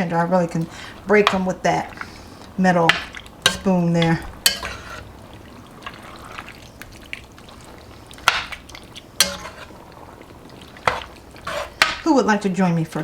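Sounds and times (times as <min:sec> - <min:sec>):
liquid stirring: 0:00.5 - 0:12.1
metal spoon knocking pot: 0:02.9 - 0:04.8.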